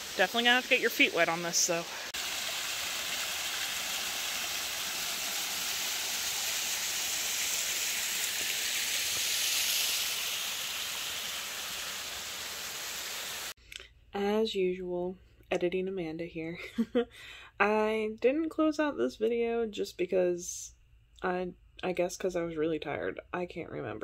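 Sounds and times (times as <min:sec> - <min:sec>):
water rushing over rock ledges: 0:00.0 - 0:13.5.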